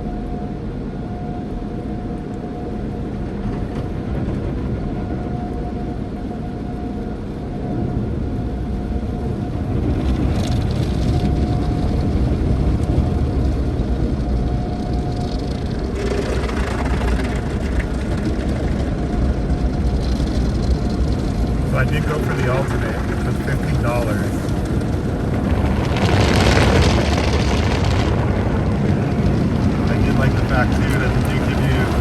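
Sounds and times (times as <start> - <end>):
faint hum: 0.0 - 32.0
car wash machinery rumble: 9.7 - 32.0.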